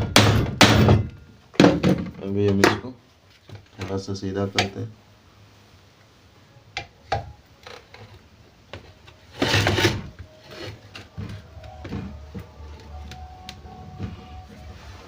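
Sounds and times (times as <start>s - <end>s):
metal scraping rub: 9.3s - 11.5s.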